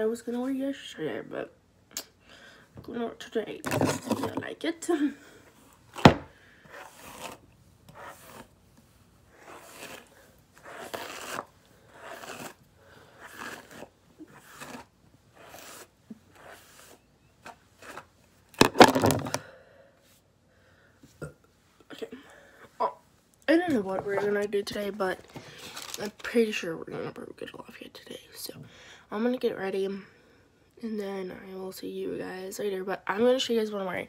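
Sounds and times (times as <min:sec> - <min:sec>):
rustling and scraping handling noise: 0:03.5 - 0:04.6, 0:23.5 - 0:26.6.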